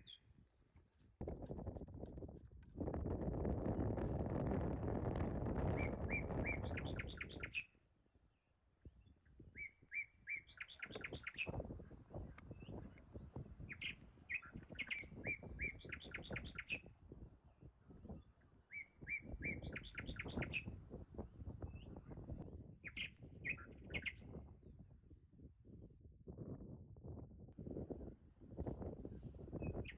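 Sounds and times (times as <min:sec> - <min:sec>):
songbird singing: 0:00.0 - 0:00.4, 0:05.6 - 0:24.4.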